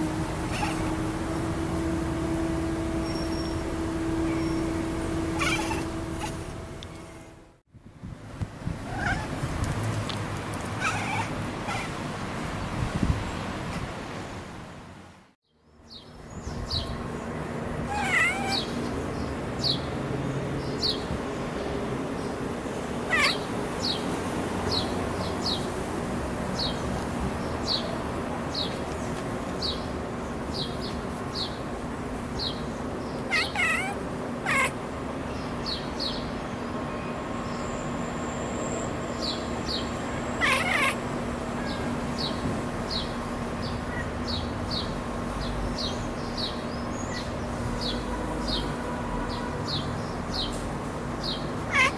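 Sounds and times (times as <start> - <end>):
cat chirping and chattering: 0.4 - 1.0, 5.3 - 6.5, 8.9 - 9.5, 10.8 - 12.0, 17.8 - 18.8, 23.1 - 23.6, 33.2 - 34.8, 40.3 - 41.8, 43.7 - 44.9, 51.6 - 51.9.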